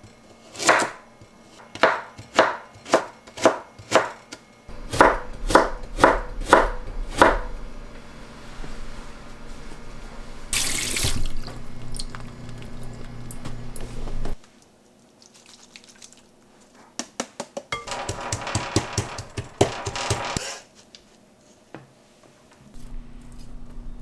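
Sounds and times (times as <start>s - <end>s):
tap water running into sink: 10.5s - 14.2s.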